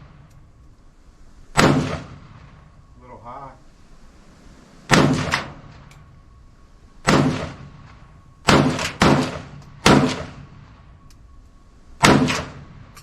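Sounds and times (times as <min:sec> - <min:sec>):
rifle shots echoing: 0:01.5 - 0:02.8, 0:04.9 - 0:06.1, 0:07.0 - 0:11.0, 0:12.0 - 0:13.0.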